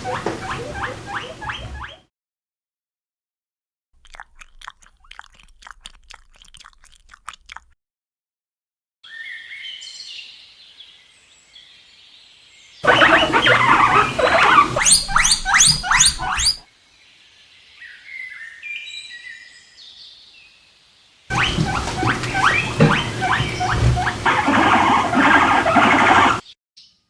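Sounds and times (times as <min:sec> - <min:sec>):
guinea pig squealing: 0:00.0 - 0:02.0, 0:12.8 - 0:16.6, 0:21.3 - 0:26.5.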